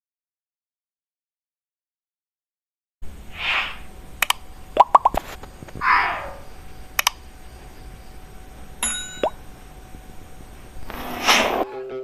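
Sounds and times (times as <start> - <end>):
swishes: 3.3 - 3.8
sharp clicks: 4.2 - 5.2, 7.0 - 7.2.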